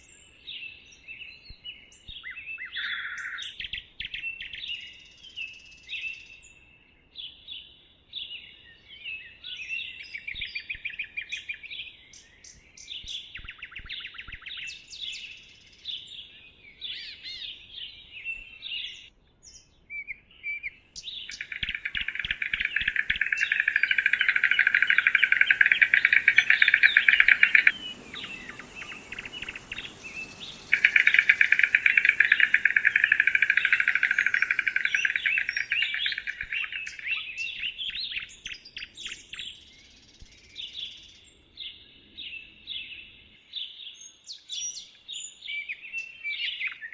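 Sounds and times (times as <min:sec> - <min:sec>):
high-pitched insect hiss: 0:21.0 - 0:37.2
bird chirps and trills: 0:21.0 - 0:37.3
dense rapid trilling: 0:21.3 - 0:36.9.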